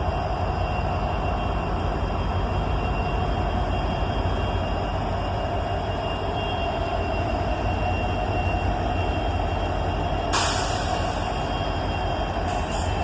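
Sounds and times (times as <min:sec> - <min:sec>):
freight train rumbling: 0:00.0 - 0:13.0
air hiss: 0:10.3 - 0:11.4.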